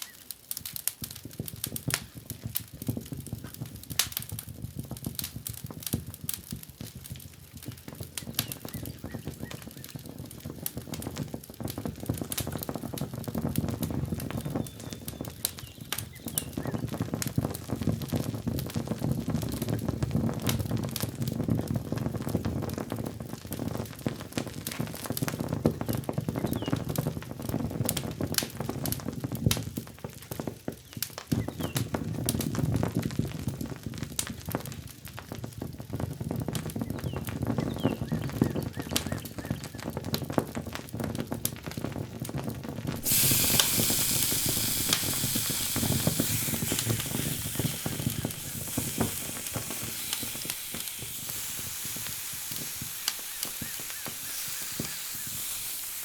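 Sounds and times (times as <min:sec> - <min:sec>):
food crackling in a pan: 0:00.0 - 0:27.0, 0:42.8 - 0:56.0
loud sizzle: 0:10.7 - 0:29.6, 0:42.8 - 0:56.0.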